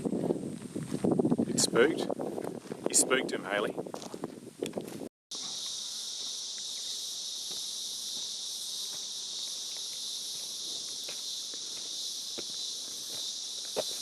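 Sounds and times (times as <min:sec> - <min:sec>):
insects buzzing: 0:05.3 - 0:14.0.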